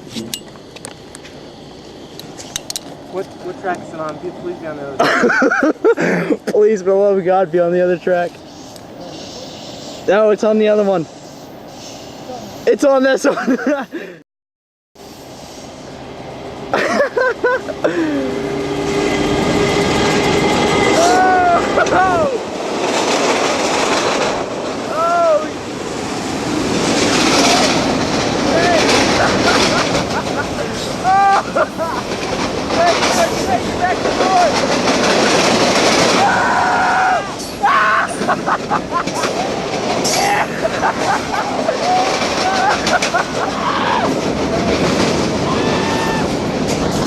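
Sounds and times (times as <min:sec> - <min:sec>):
train rumbling on tracks: 0:00.0 - 0:13.9, 0:15.0 - 0:47.0
people shouting: 0:20.9 - 0:22.4, 0:24.9 - 0:25.5, 0:28.4 - 0:29.2, 0:30.7 - 0:32.0, 0:36.1 - 0:38.3, 0:41.5 - 0:44.2, 0:45.4 - 0:46.4.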